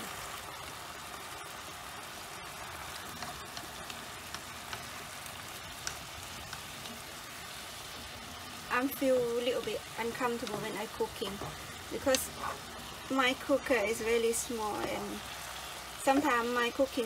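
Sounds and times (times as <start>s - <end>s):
food sizzling in a frying pan: 0.0s - 17.0s
tongs clicking against pan: 5.8s - 7.0s.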